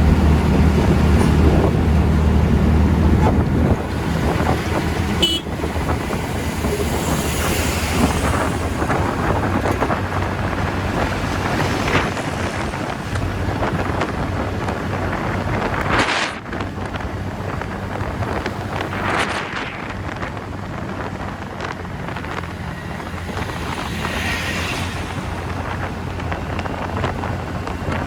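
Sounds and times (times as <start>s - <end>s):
road noise: 0.0s - 28.0s
wind rushing over microphone: 0.0s - 28.0s.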